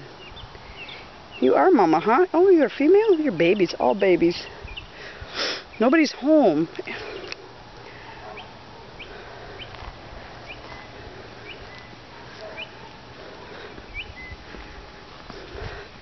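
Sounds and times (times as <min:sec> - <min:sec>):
steady low hum: 0:06.6 - 0:16.0
bird rising chirp: 0:10.4 - 0:13.0, 0:13.6 - 0:14.8.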